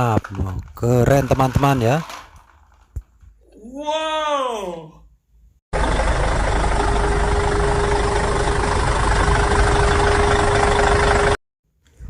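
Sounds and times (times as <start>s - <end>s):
steady whine: 5.8s - 11.4s
truck engine idling: 5.8s - 11.4s.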